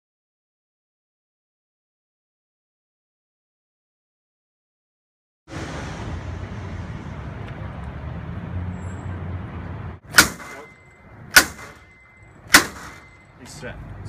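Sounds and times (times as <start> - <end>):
low rumble: 5.5 - 9.0
ram striking metal door: 10.1 - 11.9, 12.5 - 13.1.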